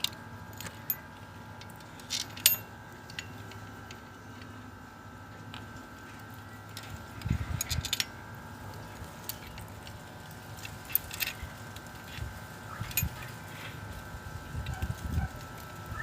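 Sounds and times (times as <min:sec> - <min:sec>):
metallic clicks and clinks: 0:00.0 - 0:04.5, 0:06.7 - 0:08.2, 0:10.6 - 0:12.1
faint steady whine: 0:00.0 - 0:16.0.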